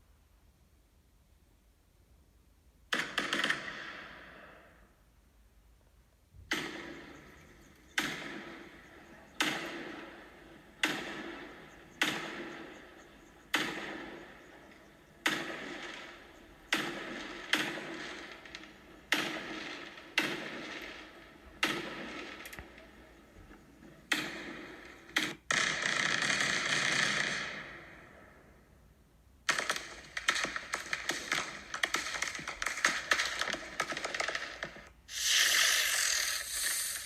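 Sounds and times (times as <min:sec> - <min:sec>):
firework bangs: 0:06.5 - 0:23.1, 0:29.5 - 0:37.0
firework crackling burst: 0:29.6 - 0:37.0.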